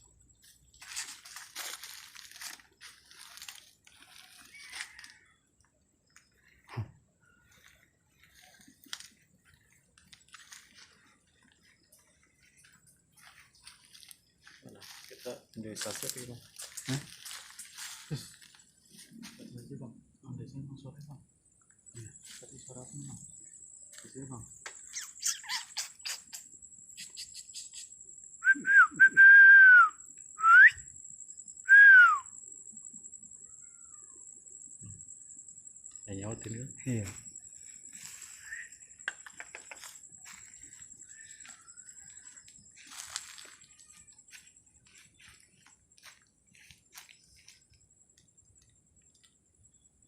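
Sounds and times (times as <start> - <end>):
insect chirring: 0.0 - 50.0
person whistling: 28.4 - 30.8, 31.7 - 32.3.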